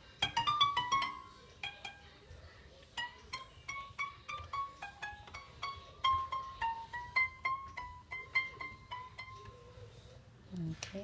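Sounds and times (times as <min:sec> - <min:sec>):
plucked string melody: 0:00.0 - 0:09.9.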